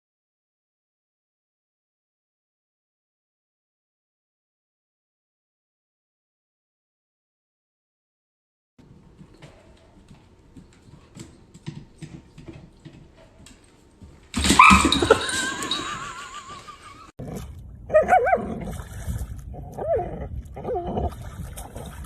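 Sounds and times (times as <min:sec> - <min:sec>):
dog whining: 0:14.4 - 0:15.3.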